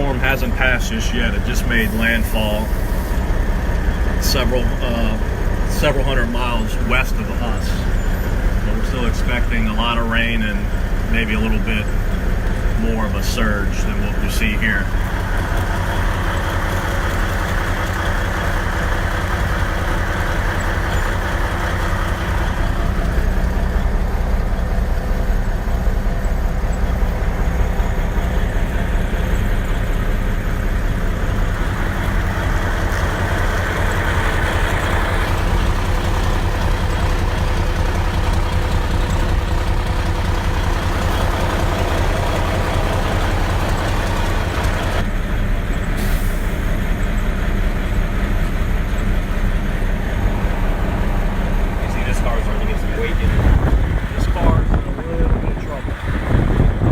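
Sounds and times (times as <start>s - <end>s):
vehicle engine and road noise: 0.0s - 56.9s
hiss: 1.7s - 3.3s.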